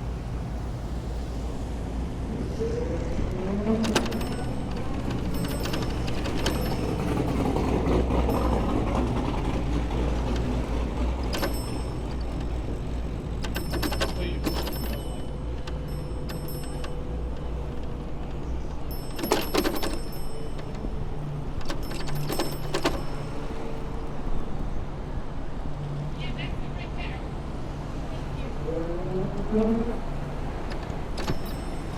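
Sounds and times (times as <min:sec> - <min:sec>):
traffic rumble: 0:00.0 - 0:31.9
wind: 0:00.0 - 0:31.9
bicycle clacks and rattles: 0:03.7 - 0:24.0, 0:30.4 - 0:31.9.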